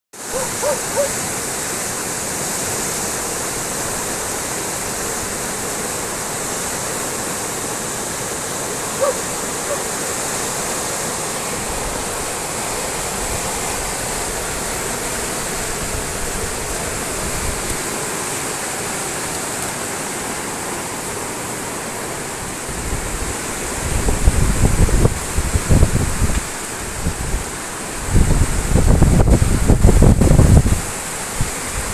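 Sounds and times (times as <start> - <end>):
fast-flowing water rushing: 0.2 - 31.9
wind buffeting microphone: 22.7 - 31.9.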